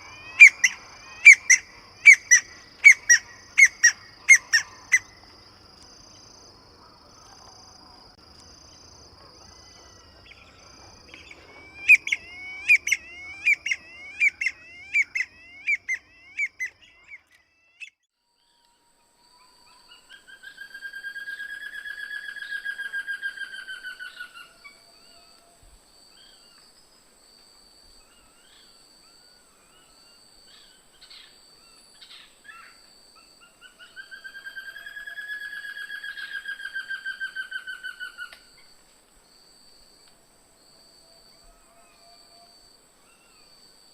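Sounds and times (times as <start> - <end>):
birds calling sharp notes: 0.0 - 5.2, 10.0 - 17.9
long trilled bird call: 0.0 - 5.2, 11.1 - 18.0.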